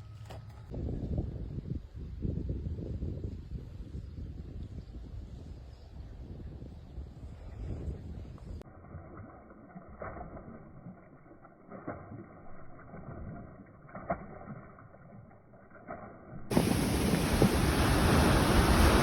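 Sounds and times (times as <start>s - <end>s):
wind buffeting microphone: 0.7s - 8.6s, 16.5s - 19.0s.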